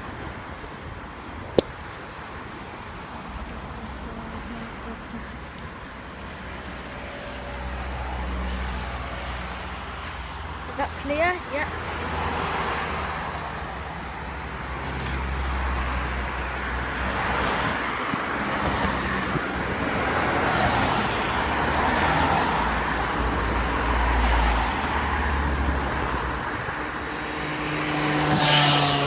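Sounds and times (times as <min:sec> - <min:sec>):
tyres rolling on pavement: 0:11.4 - 0:29.0
wind buffeting microphone: 0:16.7 - 0:21.7.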